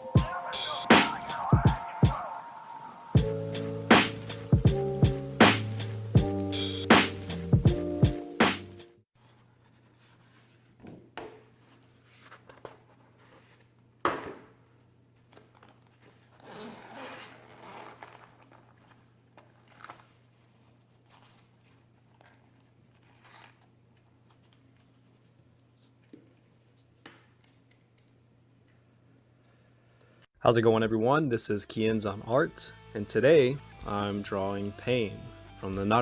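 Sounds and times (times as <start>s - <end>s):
paper rustling: 9.2s - 13.8s, 17.8s - 26.0s.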